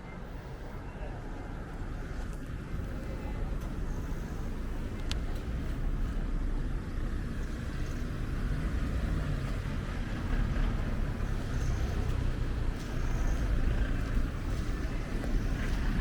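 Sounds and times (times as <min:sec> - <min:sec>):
low rumble of street ambience: 0:00.0 - 0:16.0.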